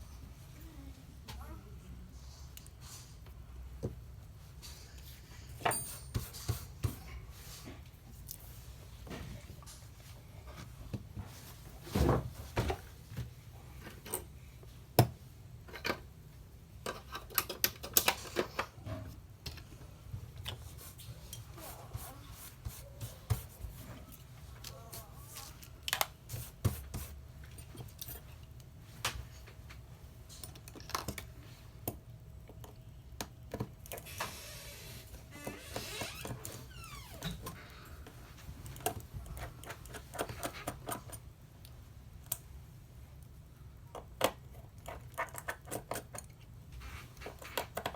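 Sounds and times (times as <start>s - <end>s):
tools and phone parts clicking: 16.8s - 18.7s, 38.8s - 41.2s, 43.9s - 46.5s.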